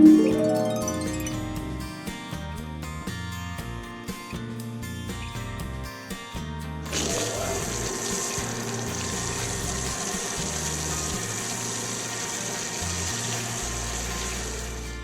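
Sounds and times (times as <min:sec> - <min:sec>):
background music with bass: 0:00.0 - 0:15.0
spraying water hiss: 0:06.9 - 0:15.0.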